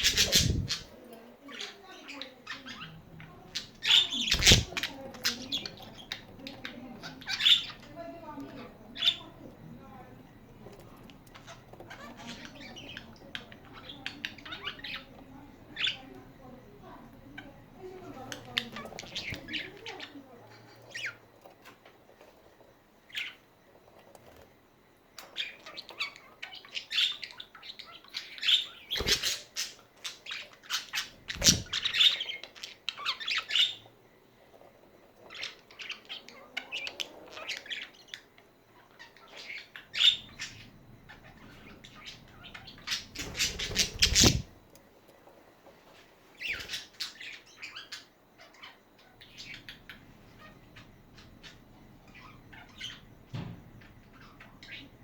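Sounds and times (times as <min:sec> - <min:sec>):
wings fluttering: 0:00.0 - 0:00.9, 0:04.0 - 0:05.2, 0:28.9 - 0:29.4, 0:31.0 - 0:32.1, 0:43.1 - 0:44.6
budgerigars chattering and chirping: 0:00.0 - 0:09.5, 0:10.8 - 0:16.2, 0:17.4 - 0:21.2, 0:25.2 - 0:33.9, 0:35.2 - 0:44.6, 0:46.4 - 0:53.1, 0:53.8 - 0:55.0.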